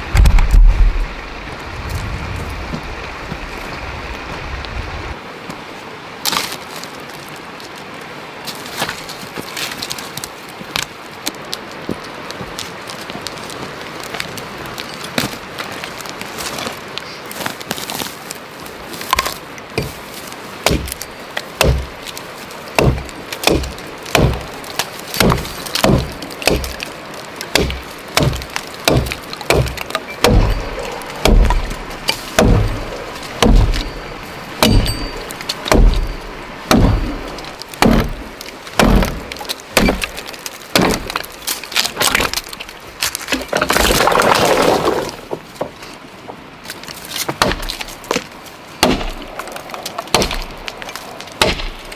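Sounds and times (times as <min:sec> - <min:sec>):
wood being chopped: 0:00.1 - 0:00.9, 0:19.1 - 0:42.6, 0:47.2 - 0:51.9.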